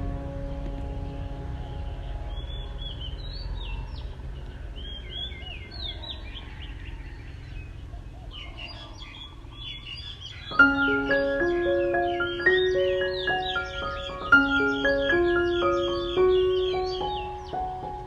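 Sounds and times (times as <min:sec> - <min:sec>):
music with mallet notes: 0:00.0 - 0:03.4, 0:10.5 - 0:18.0
low background rumble: 0:00.0 - 0:06.5
small birds chirping: 0:00.0 - 0:18.0.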